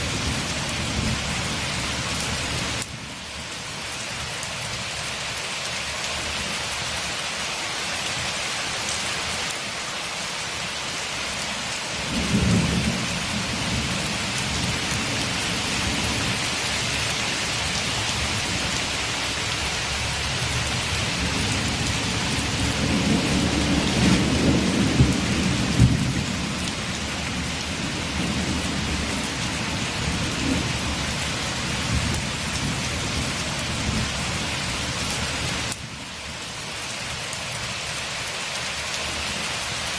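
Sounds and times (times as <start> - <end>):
rain pattering on a window: 0.0 - 39.9
thunder rumbling: 12.0 - 34.2.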